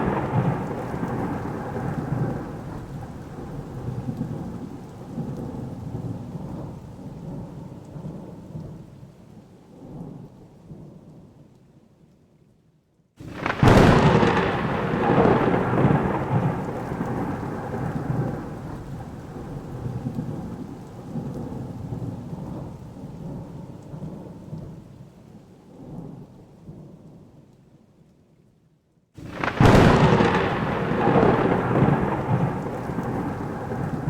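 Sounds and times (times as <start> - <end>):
thunderclap with rolling rumble: 0.0 - 9.1, 13.2 - 25.0, 29.2 - 34.0
rain falling: 0.0 - 34.0.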